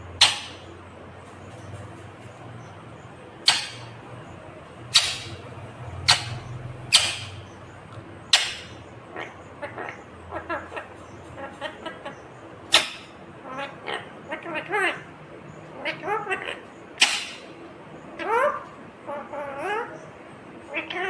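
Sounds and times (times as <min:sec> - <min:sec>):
parrot chattering calls: 0:00.0 - 0:21.0
parrot screeching: 0:00.2 - 0:00.7, 0:03.4 - 0:04.0, 0:04.9 - 0:07.5, 0:08.3 - 0:12.1, 0:12.7 - 0:15.0, 0:15.8 - 0:17.6, 0:20.7 - 0:21.0.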